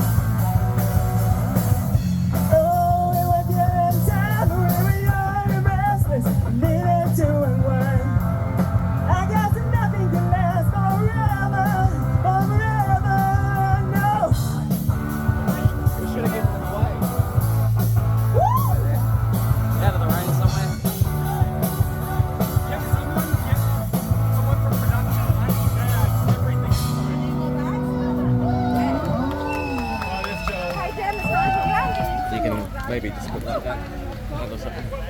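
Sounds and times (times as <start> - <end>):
rock band playing live: 0.0 - 32.2
person singing: 2.4 - 8.3.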